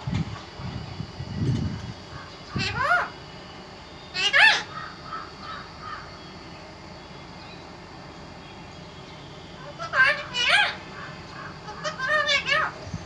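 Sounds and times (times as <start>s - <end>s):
parrot meow-like calls: 2.2s - 3.2s, 4.1s - 6.1s, 9.6s - 12.9s
parrot chirps: 4.1s - 4.8s, 9.6s - 10.9s, 11.6s - 12.8s.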